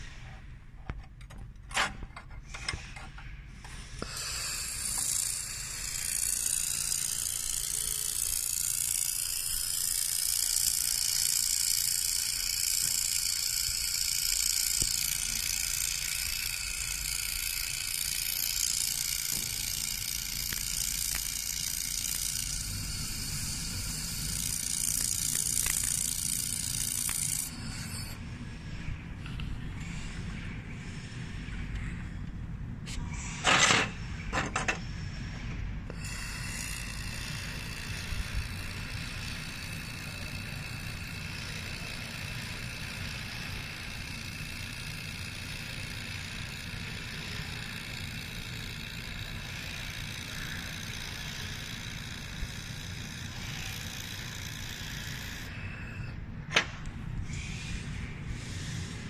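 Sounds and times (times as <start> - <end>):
laser welder high-pitched hiss: 3.8 - 28.2, 35.9 - 56.1
sharp clicks: 23.6 - 27.5.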